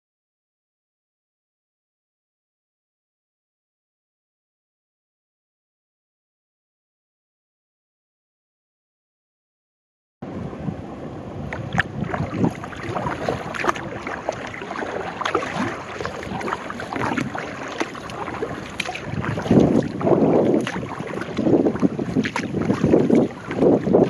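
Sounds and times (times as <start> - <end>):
wind rumbling on microphone: 10.2 - 24.0
paddle splashing water: 11.4 - 24.0.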